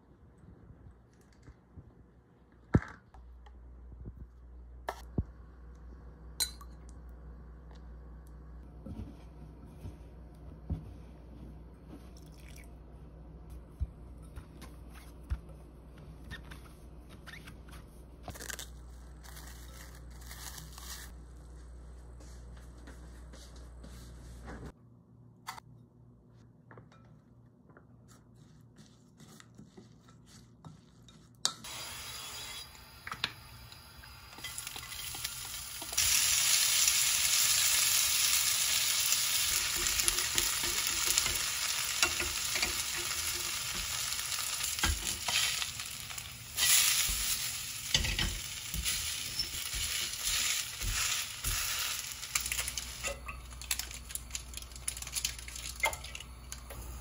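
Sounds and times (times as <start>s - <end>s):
chopsticks stirring: 28.1s - 31.6s
potato sizzling in oil: 31.7s - 55.9s.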